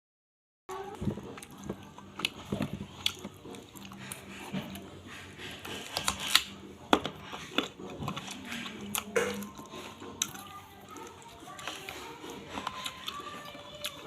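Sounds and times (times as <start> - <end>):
person biting and chewing: 1.2 - 10.4.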